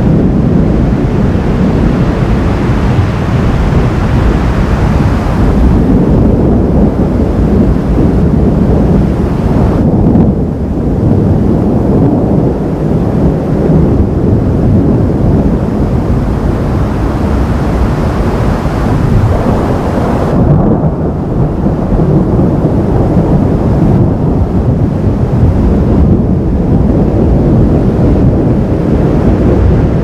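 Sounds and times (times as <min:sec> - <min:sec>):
thunder rumbling: 0:00.0 - 0:30.0.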